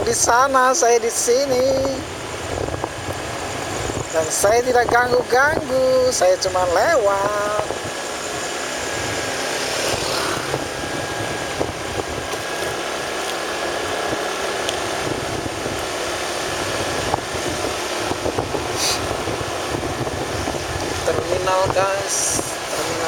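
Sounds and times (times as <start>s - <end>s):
motorcycle engine and tyre noise: 0.0s - 23.0s
wind on microphone: 0.0s - 23.0s
brief hiss: 18.8s - 19.1s.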